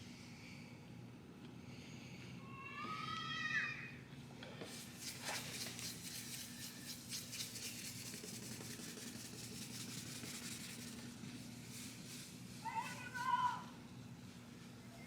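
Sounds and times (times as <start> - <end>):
wipe scrubbing plastic lens: 4.7 - 12.0.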